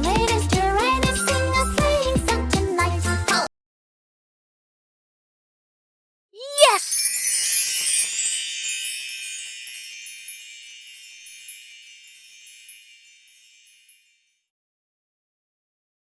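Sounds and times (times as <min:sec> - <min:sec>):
shimmering chime twinkle: 0:06.6 - 0:14.5.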